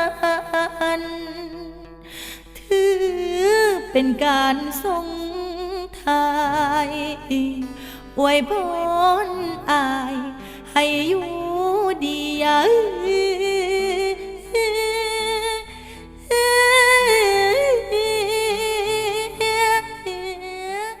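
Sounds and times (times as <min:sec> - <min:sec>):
person singing wordless notes: 0:02.7 - 0:15.7.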